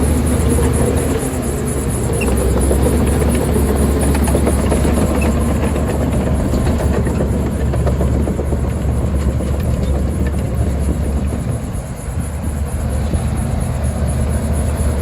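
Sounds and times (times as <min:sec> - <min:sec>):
heavy machinery diesel engine: 0:00.0 - 0:15.0.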